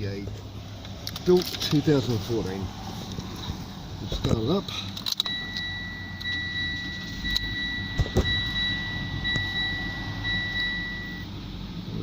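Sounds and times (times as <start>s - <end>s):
low steady hum: 0.0s - 12.0s
high-pitched car warning tone: 5.2s - 11.3s.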